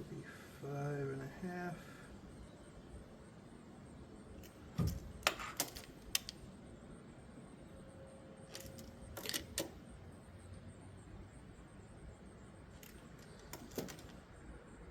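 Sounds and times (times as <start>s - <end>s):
hand tools clicking and knocking: 8.5s - 9.8s, 12.8s - 14.2s.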